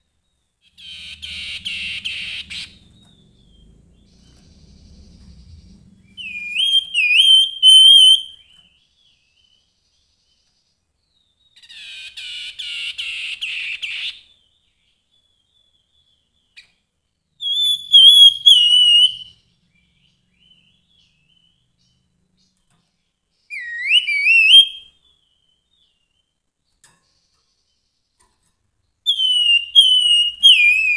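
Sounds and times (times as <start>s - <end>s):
buzzy bird chattering: 0.8s - 2.9s
bird whistled notes: 0.8s - 8.5s, 23.5s - 25.0s, 29.1s - 30.9s.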